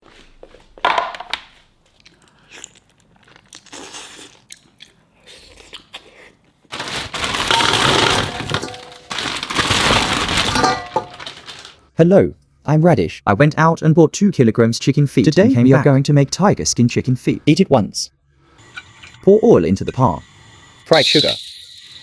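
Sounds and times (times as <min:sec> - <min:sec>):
food cracking and crackling: 0:01.3 - 0:11.8.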